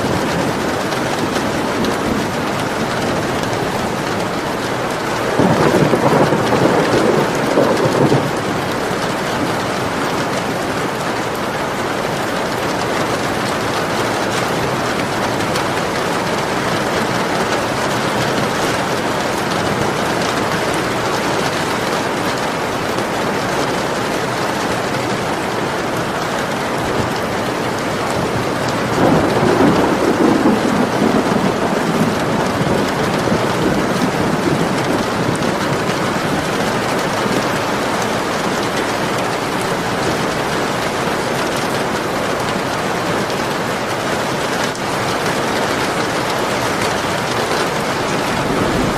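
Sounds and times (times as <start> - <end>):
thunder rumbling: 0.0 - 11.0, 26.9 - 42.5, 47.2 - 48.9
steady rain falling: 0.0 - 48.9.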